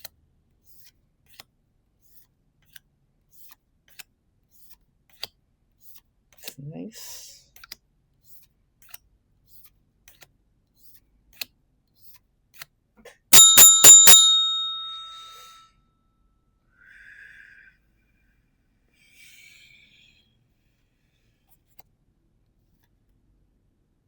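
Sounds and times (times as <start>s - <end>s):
small bell ringing: 13.3s - 15.6s.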